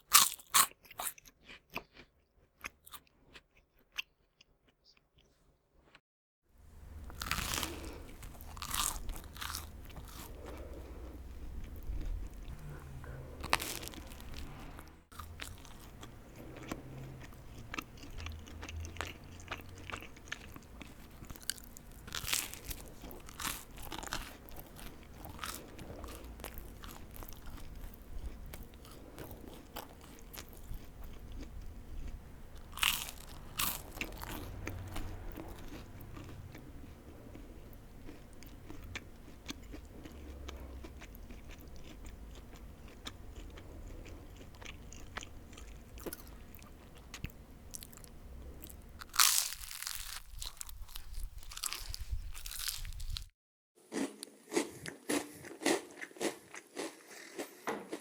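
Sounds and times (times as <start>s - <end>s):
crunchy food being chewed: 0.0s - 6.0s, 6.9s - 53.3s, 53.9s - 58.0s
low rumble: 6.9s - 37.8s.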